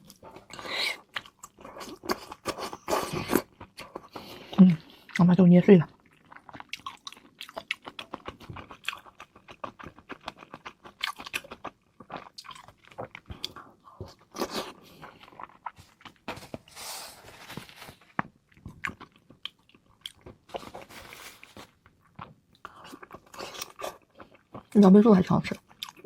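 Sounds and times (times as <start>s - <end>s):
wet chewing and crunchy bites: 5.9s - 16.8s, 17.6s - 24.8s, 25.5s - 26.0s.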